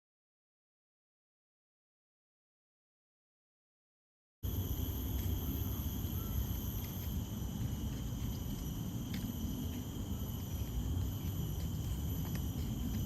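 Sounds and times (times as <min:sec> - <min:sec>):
high-pitched insect chorus: 0:04.4 - 0:13.0
steady low rumble: 0:04.4 - 0:13.0.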